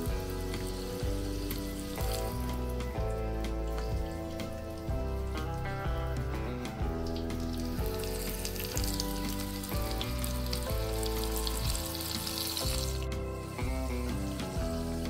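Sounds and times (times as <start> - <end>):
background music: 0.0 - 15.0
prawns deep-frying in hot oil: 0.0 - 15.0.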